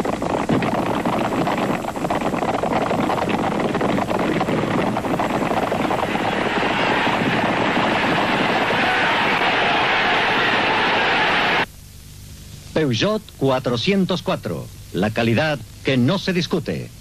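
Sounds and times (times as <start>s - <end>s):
tape hiss: 0.0s - 17.0s.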